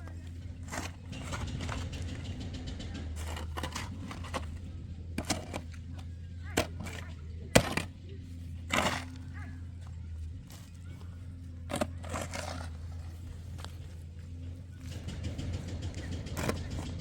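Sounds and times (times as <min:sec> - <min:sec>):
sharp knocks and clicks: 0:00.0 - 0:08.0, 0:11.7 - 0:17.0
low steady hum: 0:00.0 - 0:17.0.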